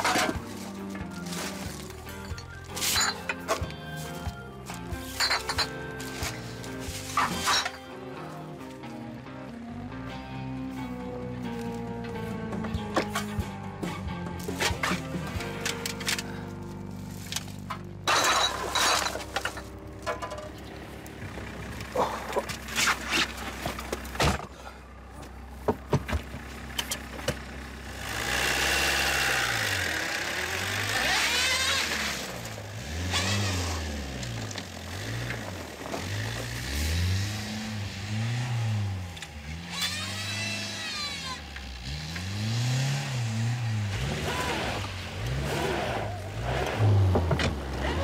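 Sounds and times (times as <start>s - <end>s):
wheels spinning whine: 26.4s - 37.1s, 37.8s - 48.0s
car engine revving: 26.6s - 48.0s.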